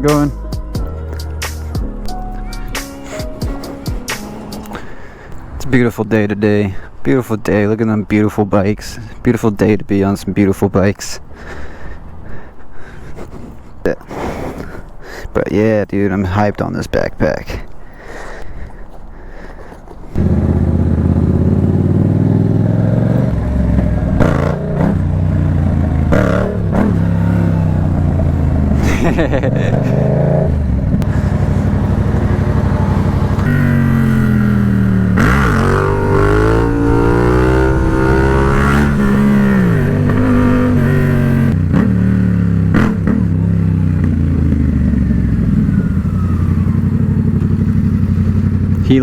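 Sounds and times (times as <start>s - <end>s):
motorcycle engine revving: 2.5s - 4.9s, 20.2s - 49.0s.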